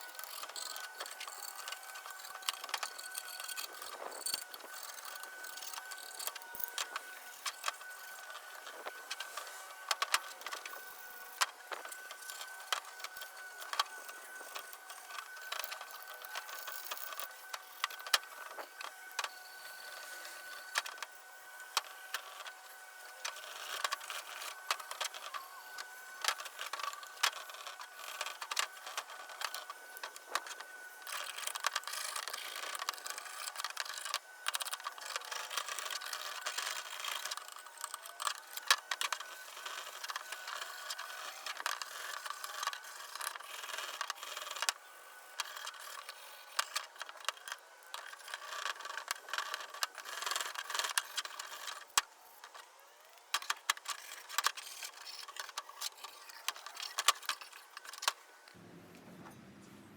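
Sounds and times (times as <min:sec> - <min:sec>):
hand scraping metal parts: 0:00.0 - 0:19.0, 0:23.1 - 0:44.7, 0:45.4 - 0:52.6.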